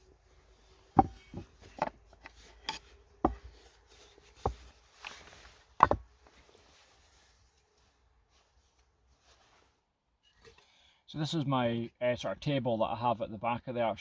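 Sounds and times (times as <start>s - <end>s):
camping gear knocking and clunking: 0.7s - 6.7s.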